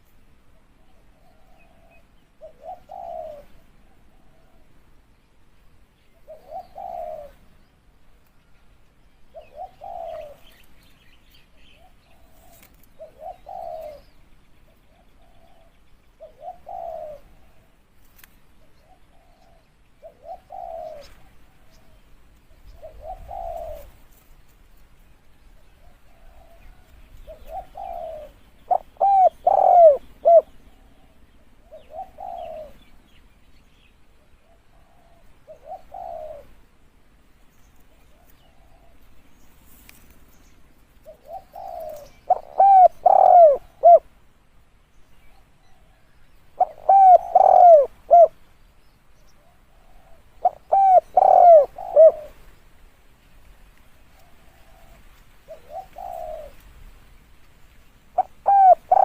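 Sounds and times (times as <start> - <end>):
dove cooing: 0.0 - 4.9, 6.2 - 7.6, 9.3 - 10.7, 11.7 - 18.0, 18.6 - 24.2, 25.4 - 33.0, 34.2 - 36.7, 37.9 - 39.1, 41.0 - 44.1, 45.3 - 48.5, 49.3 - 52.6, 54.0 - 56.9, 58.1 - 59.0.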